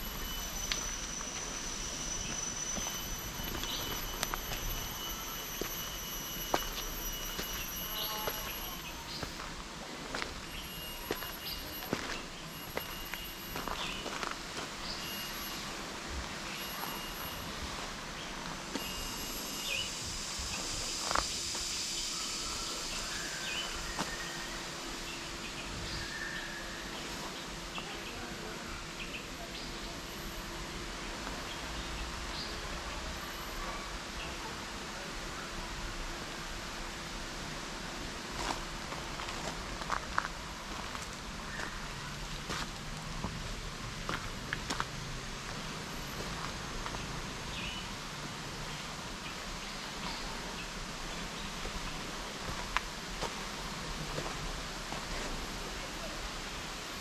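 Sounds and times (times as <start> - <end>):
high-pitched insect drone: 0.0 - 37.6.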